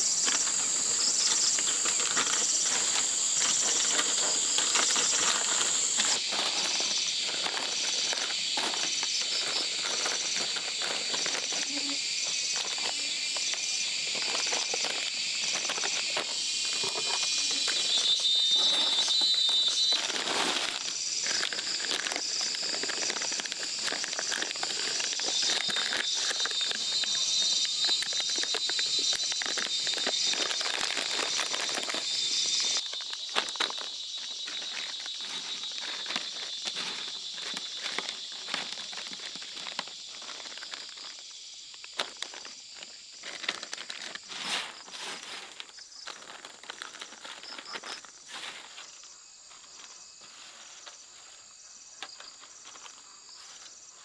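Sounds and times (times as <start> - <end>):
close rustling and crackling clicks: 19.1 - 44.3.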